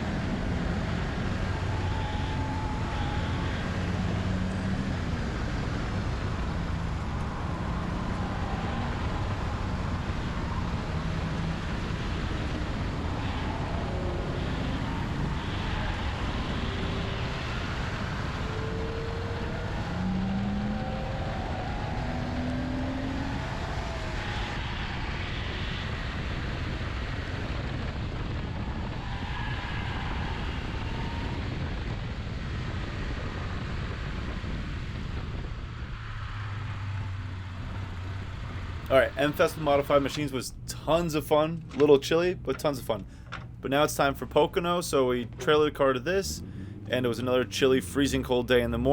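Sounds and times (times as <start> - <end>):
car engine under load: 0.0 - 48.9
road and wind noise: 0.0 - 48.9.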